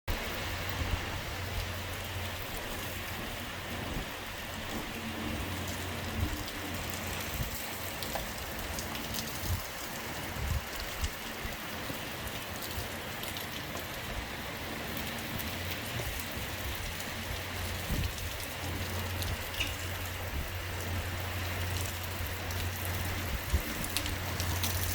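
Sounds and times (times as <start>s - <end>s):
heavy rain splashing: 0.1s - 24.9s
drips and knocks: 17.8s - 20.2s.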